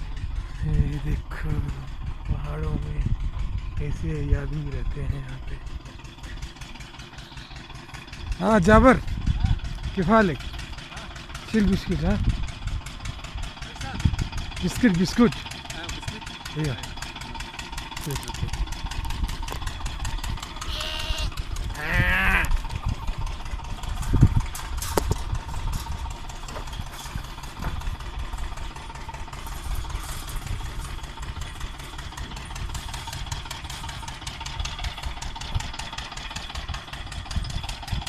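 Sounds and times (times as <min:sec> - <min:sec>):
farm engine running: 0:00.0 - 0:38.0
livestock bleat: 0:20.6 - 0:22.6.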